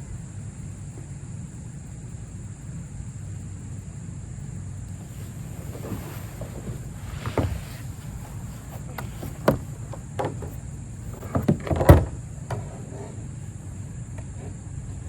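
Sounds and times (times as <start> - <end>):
wind and water rumble: 4.9 - 15.0
knocks on plastic kayak hull: 6.6 - 12.7.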